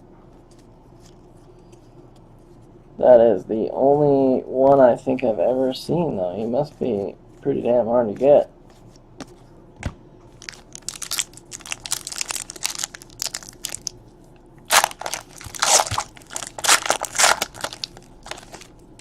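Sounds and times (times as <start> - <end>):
plastic packaging crinkling: 10.4 - 14.0, 14.7 - 18.8.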